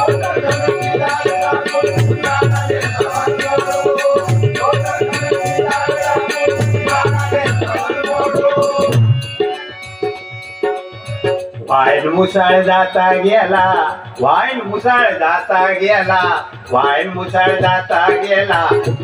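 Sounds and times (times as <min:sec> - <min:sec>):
harmonium melody: 0:00.0 - 0:14.2.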